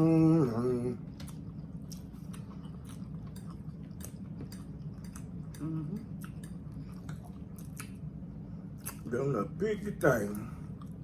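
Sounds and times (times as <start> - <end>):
steady low hum: 0.0 - 11.0
wet chewing sounds: 1.1 - 9.1.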